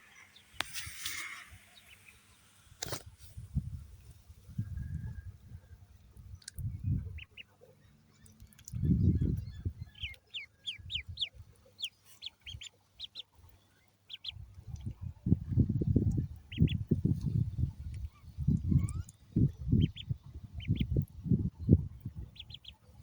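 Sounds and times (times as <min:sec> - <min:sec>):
ducklings peeping: 0:06.7 - 0:21.1, 0:22.0 - 0:23.0.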